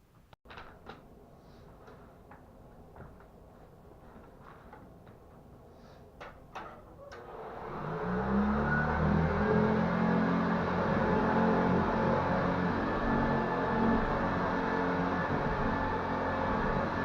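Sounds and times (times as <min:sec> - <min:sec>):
vacuum cleaner motor running: 0:07.1 - 0:17.0.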